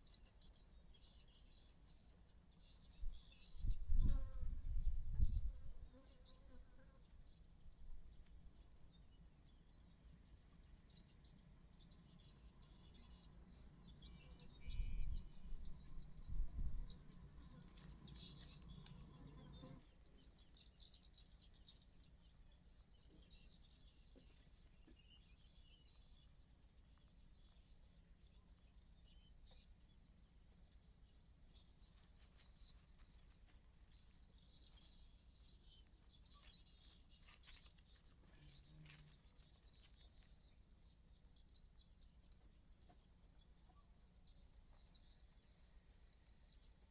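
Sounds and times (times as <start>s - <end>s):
bird chirping: 11.8s - 46.9s.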